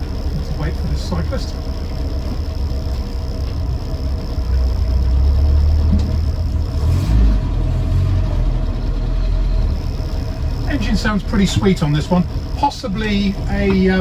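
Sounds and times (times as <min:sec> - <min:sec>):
car engine pulling away: 0:00.0 - 0:14.0
exhaust chirping: 0:00.0 - 0:14.0
person talking: 0:10.6 - 0:14.0.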